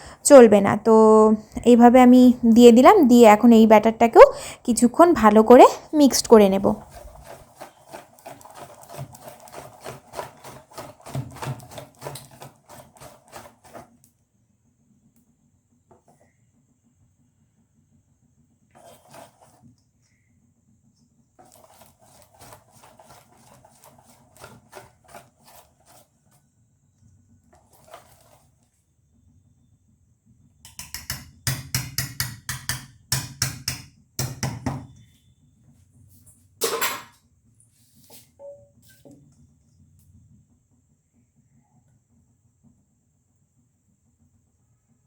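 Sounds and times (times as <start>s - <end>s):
utensil stirring batter in a bowl: 1.6s - 29.2s, 30.6s - 35.4s.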